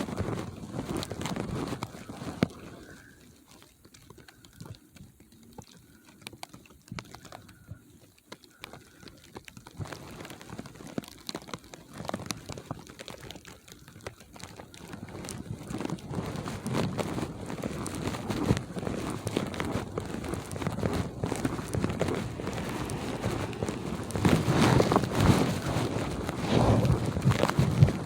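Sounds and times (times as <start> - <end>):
footsteps crunching in snow: 17.0 - 28.0.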